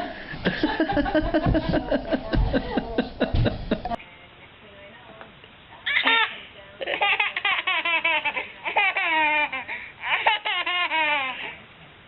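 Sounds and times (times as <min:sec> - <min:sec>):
baby laughing: 0:05.9 - 0:11.6.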